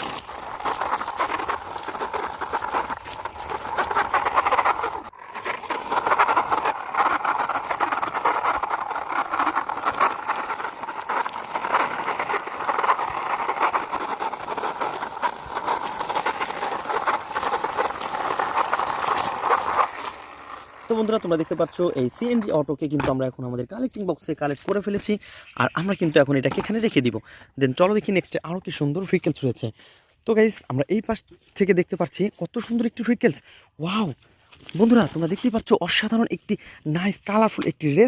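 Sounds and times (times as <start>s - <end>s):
plastic toy wheels rattling: 0.0s - 27.2s, 32.1s - 38.0s.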